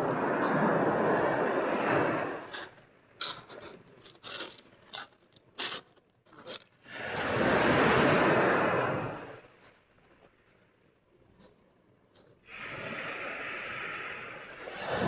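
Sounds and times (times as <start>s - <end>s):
sea waves washing onto shore: 0.0s - 2.7s.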